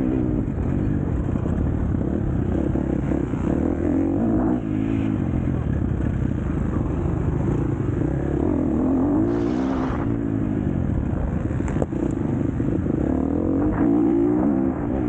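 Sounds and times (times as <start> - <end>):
motocross bike engine revving: 7.5 - 10.5, 12.0 - 15.0.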